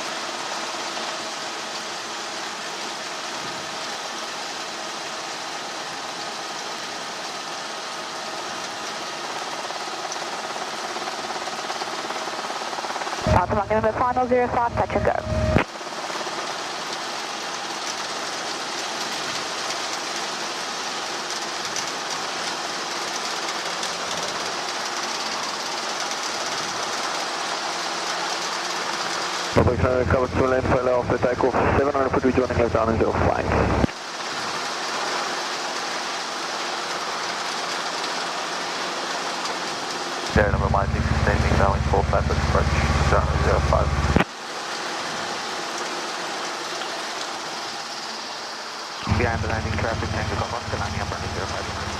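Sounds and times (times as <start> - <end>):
helicopter engine and rotor hiss: 2.8 - 30.6, 34.0 - 51.9
radio hiss: 12.8 - 15.7, 29.5 - 34.0, 40.3 - 44.4, 48.2 - 51.9
faint hum: 13.2 - 15.7, 29.6 - 33.9, 40.3 - 44.2, 49.0 - 51.9.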